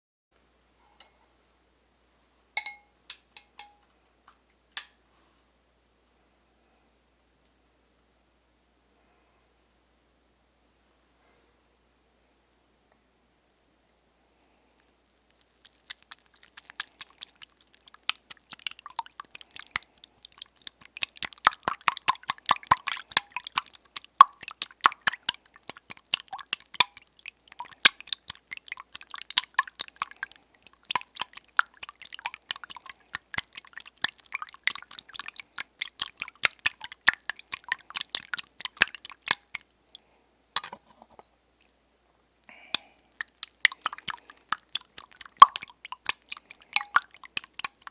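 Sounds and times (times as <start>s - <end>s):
small wet clicks and crackles: 13.4s - 41.8s, 42.4s - 47.9s.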